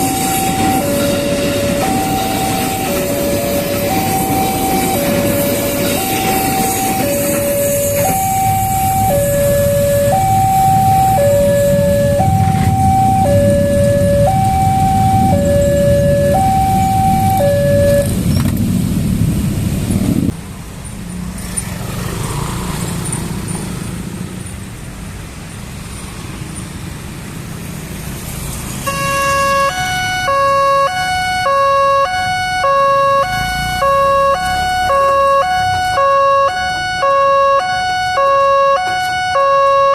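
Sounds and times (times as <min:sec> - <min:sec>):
two-tone crossing alarm: 0:00.0 - 0:18.2, 0:28.8 - 0:39.9
passing train rumble: 0:00.0 - 0:39.9.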